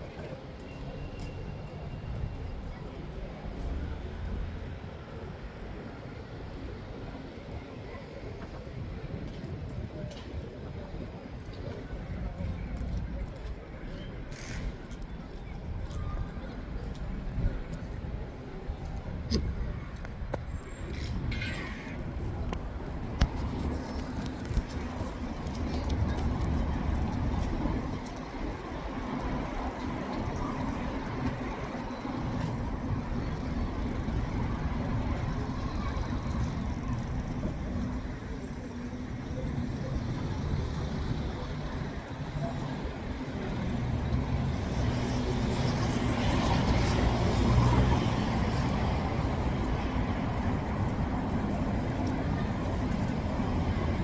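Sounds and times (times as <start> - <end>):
road noise: 0.0 - 54.0
vehicle rumble: 11.9 - 54.0.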